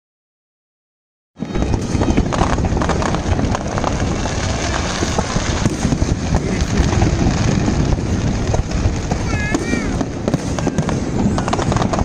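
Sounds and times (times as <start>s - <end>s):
fireworks crackling and popping: 1.4s - 12.0s.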